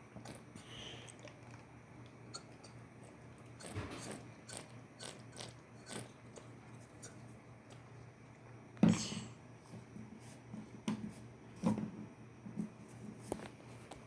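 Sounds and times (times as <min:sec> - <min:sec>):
parrot beak chewing: 0:00.2 - 0:07.8.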